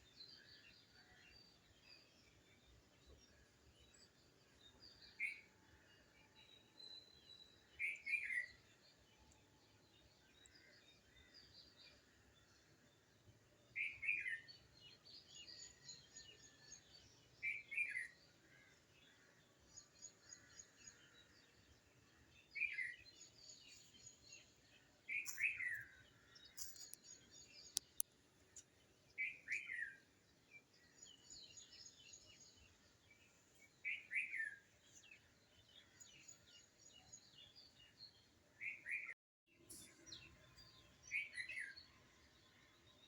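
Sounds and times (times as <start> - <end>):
faint high bird twittering: 22.5 - 28.0.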